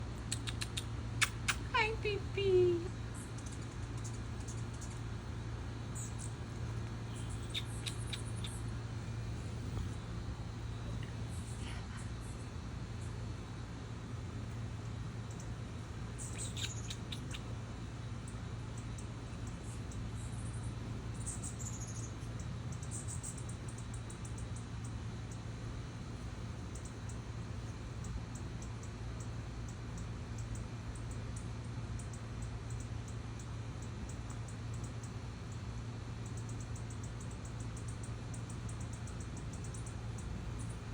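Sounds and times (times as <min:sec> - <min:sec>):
low background hum: 0:00.0 - 0:40.9
hummingbird chips: 0:00.2 - 0:13.4, 0:14.5 - 0:17.5.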